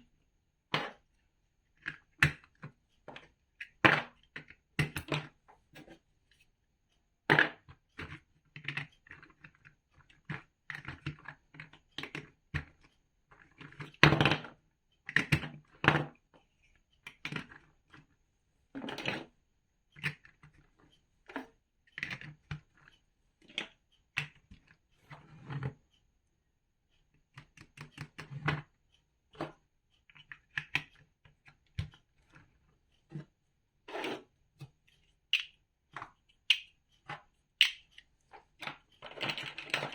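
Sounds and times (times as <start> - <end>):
plastic bricks clicking together: 35.3 - 35.6, 36.5 - 36.7, 37.6 - 38.0.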